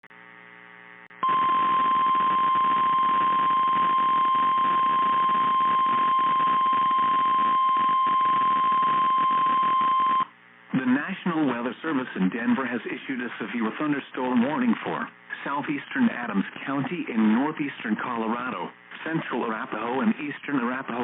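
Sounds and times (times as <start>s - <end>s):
radio static hiss: 0.2s - 21.0s
steady high alarm tone: 1.2s - 10.3s.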